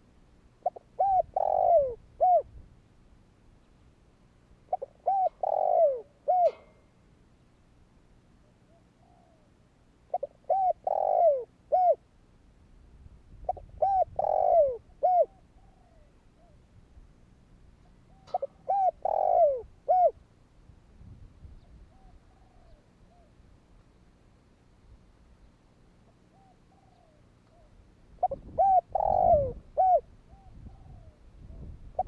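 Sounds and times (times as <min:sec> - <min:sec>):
dove cooing: 0:00.6 - 0:02.6, 0:04.7 - 0:06.7, 0:10.1 - 0:12.0, 0:13.4 - 0:16.6, 0:18.0 - 0:20.2, 0:21.6 - 0:23.4, 0:26.0 - 0:32.0.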